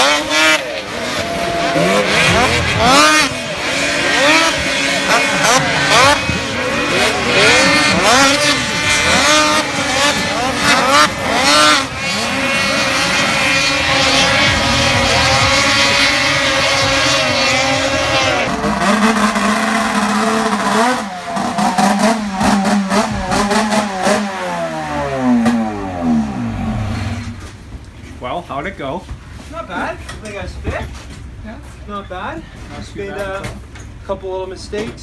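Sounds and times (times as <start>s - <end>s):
snowmobile engines revving: 0.0s - 27.7s.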